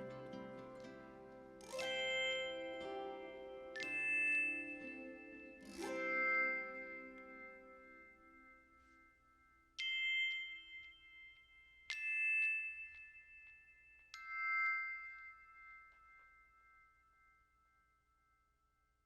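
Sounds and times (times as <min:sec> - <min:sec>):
bell-like chime strikes: 0:00.0 - 0:09.1.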